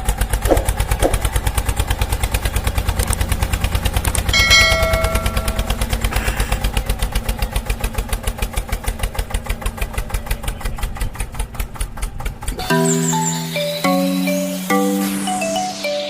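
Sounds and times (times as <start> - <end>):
tractor engine idling: 0.0 - 13.0
steady tone: 4.4 - 6.0.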